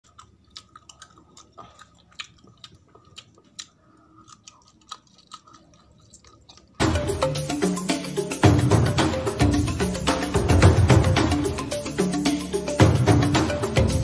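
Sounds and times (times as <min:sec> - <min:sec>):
person chewing with mouth clicks: 0:00.0 - 0:08.5.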